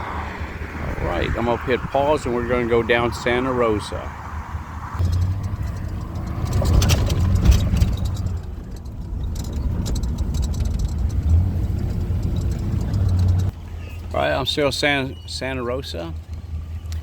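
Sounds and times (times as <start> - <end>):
car engine and road noise: 0.0 - 17.0
light knocks and rattles: 5.0 - 13.6.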